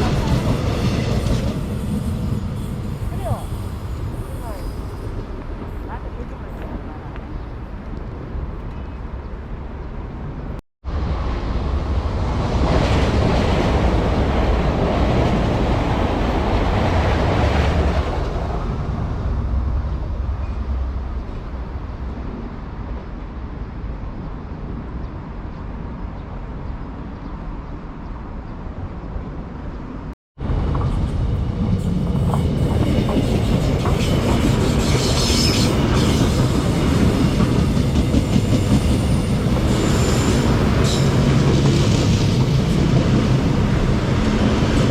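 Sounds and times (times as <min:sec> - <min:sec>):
train wheels rumbling on rail: 0:00.0 - 0:09.0, 0:30.4 - 0:44.9.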